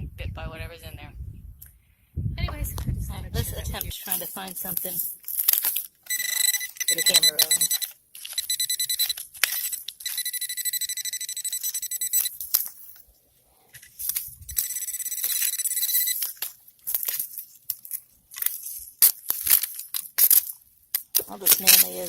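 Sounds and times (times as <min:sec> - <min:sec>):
metal detector beeping: 0:06.1 - 0:12.7, 0:14.4 - 0:16.4.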